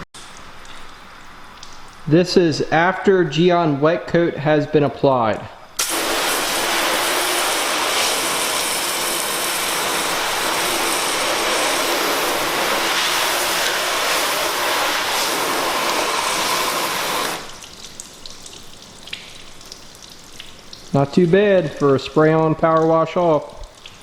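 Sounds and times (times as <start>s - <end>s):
faint dripping: 0.2s - 2.8s, 17.5s - 24.0s
pressure washer spraying water: 5.8s - 17.8s.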